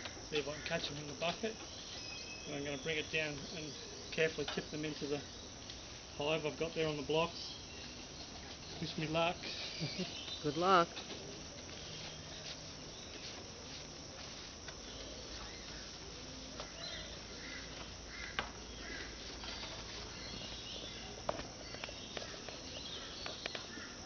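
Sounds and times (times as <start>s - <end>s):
steady hiss: 0.0s - 24.0s
bird chirps: 0.6s - 5.5s.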